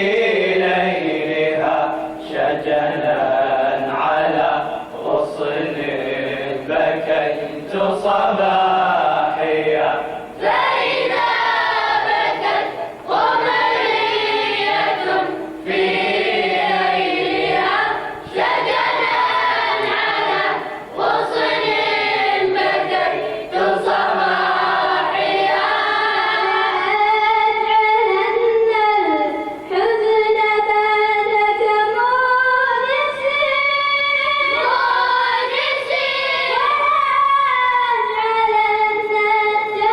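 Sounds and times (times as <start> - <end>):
choir singing devotional lament: 0.0 - 39.9.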